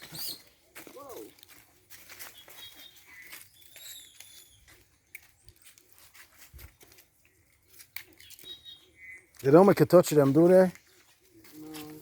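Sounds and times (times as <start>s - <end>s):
bird chirps and whistles: 2.4s - 4.7s.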